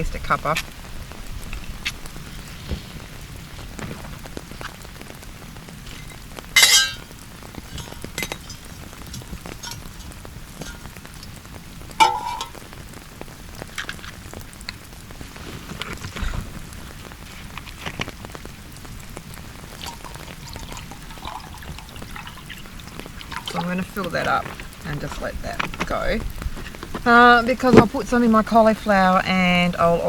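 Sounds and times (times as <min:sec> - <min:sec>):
steady rain: 0:00.0 - 0:30.0
rustling scrape: 0:01.4 - 0:04.8, 0:15.1 - 0:18.2
drips ticking: 0:05.8 - 0:15.1, 0:16.5 - 0:30.0
metallic clink: 0:06.6 - 0:07.0, 0:12.0 - 0:12.6.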